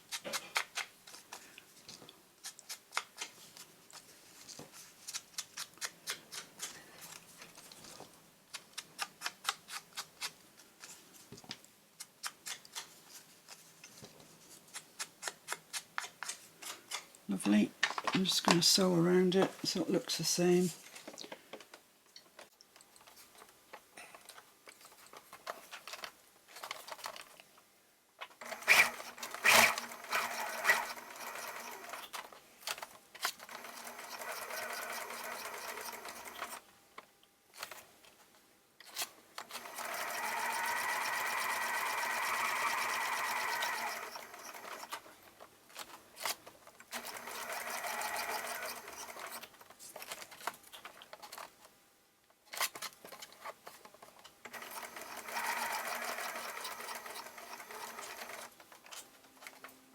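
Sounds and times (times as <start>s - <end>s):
sewing machine stitching paper: 28.4s - 36.6s, 38.9s - 45.0s, 45.8s - 50.4s, 54.5s - 59.6s.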